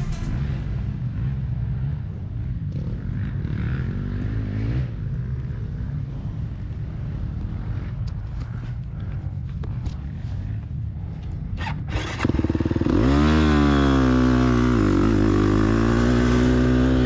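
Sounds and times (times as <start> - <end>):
short engine rev: 11.6 - 17.0.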